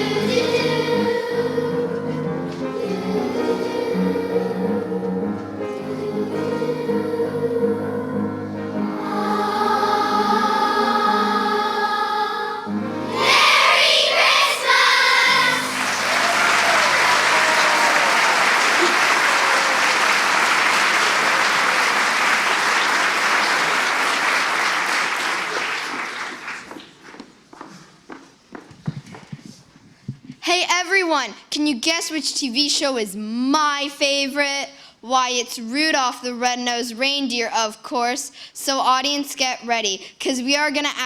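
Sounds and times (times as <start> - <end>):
children's choir singing: 0.0 - 26.6
audience applauding: 13.2 - 27.0.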